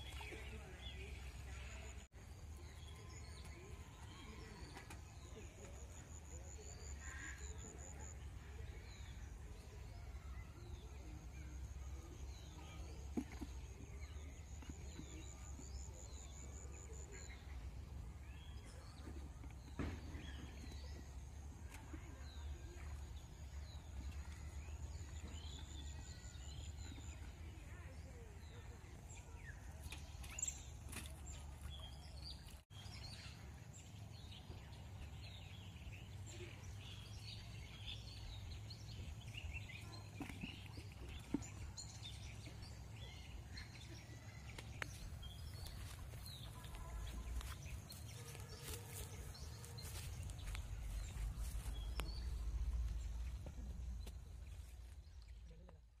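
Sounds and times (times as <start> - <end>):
low steady rumble: 50.3 - 56.0.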